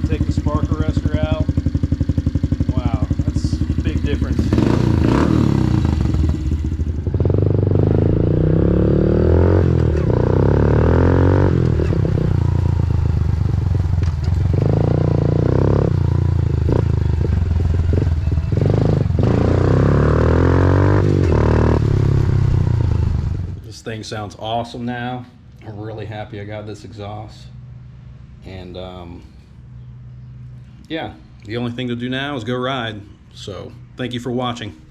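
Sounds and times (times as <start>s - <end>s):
motorcycle engine revving: 0.0s - 23.7s.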